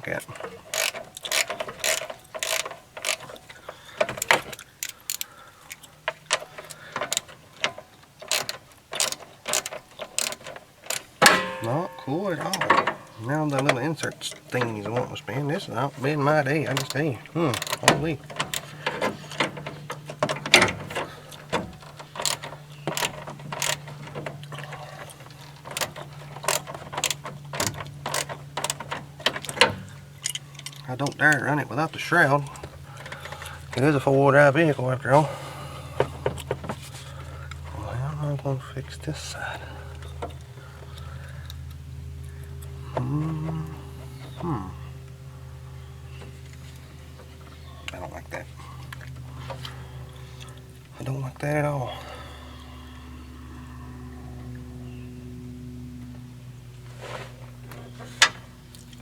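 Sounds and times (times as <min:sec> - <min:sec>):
plastic and metal parts clicking: 0:00.0 - 0:34.7
steady low hum: 0:00.0 - 0:59.0.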